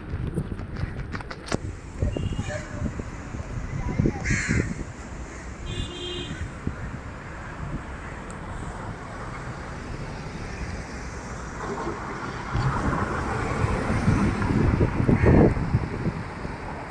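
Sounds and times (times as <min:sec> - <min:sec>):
street traffic: 0:00.0 - 0:16.9
wind buffeting microphone: 0:00.0 - 0:16.9.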